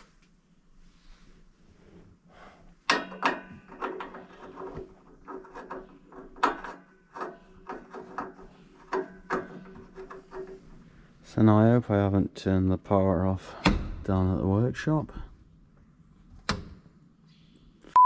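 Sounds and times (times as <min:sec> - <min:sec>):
knocks and clatters: 0:02.8 - 0:10.8.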